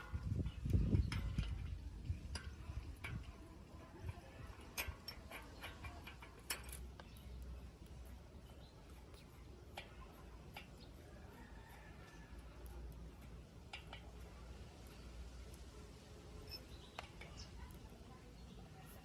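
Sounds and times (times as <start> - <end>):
light clicks and taps: 4.0 - 10.8, 11.4 - 15.8.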